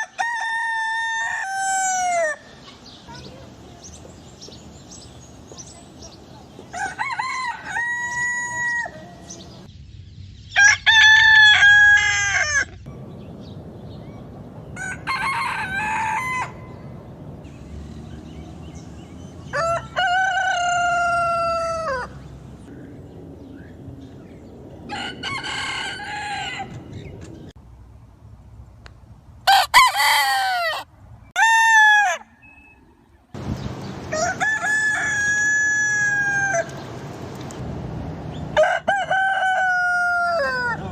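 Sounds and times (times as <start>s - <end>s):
roosters crowing: 0.0s - 2.6s, 6.6s - 9.7s, 10.5s - 12.9s, 14.6s - 16.9s, 18.3s - 22.3s, 24.9s - 27.1s, 29.5s - 32.5s, 34.0s - 36.9s, 38.5s - 40.9s.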